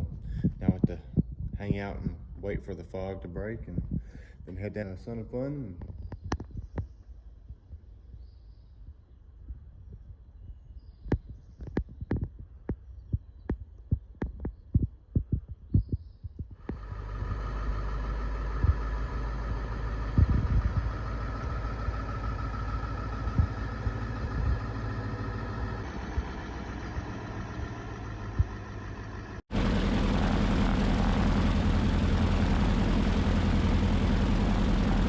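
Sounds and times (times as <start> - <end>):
radial aircraft engines running: 16.6 - 35.0.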